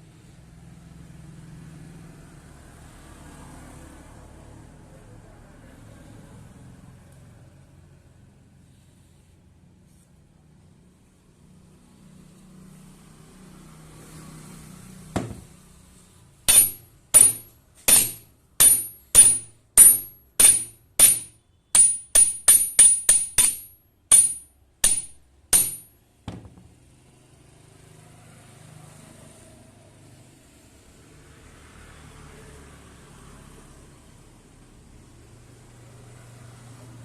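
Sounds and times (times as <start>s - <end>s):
dull knock: 15.2s - 15.5s, 25.6s - 26.7s
hammer ringing on steel: 16.5s - 25.9s.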